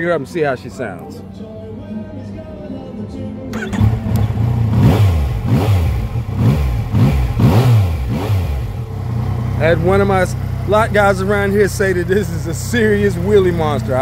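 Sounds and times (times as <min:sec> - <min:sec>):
motorcycle engine revving: 0:03.5 - 0:14.0.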